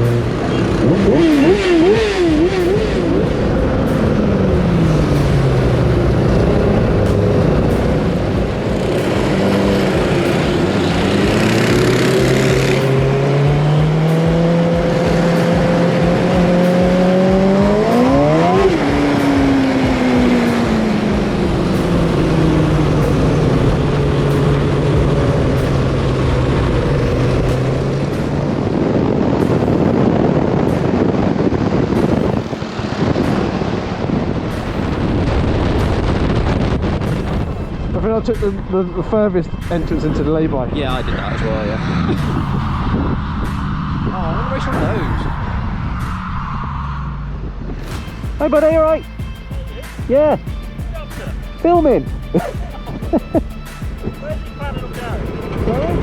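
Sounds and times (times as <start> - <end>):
go-kart engine running: 0.0 - 46.6
wind and road noise: 0.0 - 56.0.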